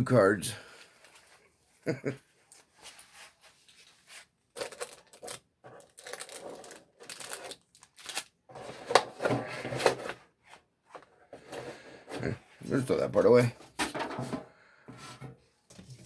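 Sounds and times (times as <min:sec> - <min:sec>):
packaging crinkling and tearing: 0:04.5 - 0:08.4.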